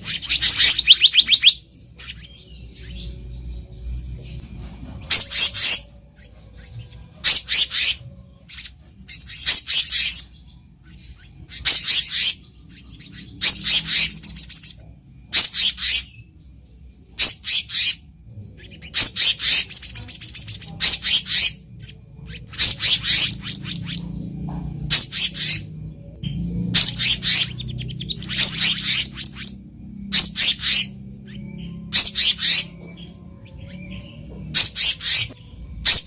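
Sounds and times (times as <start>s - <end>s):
bird calling high notes: 0.0s - 3.4s.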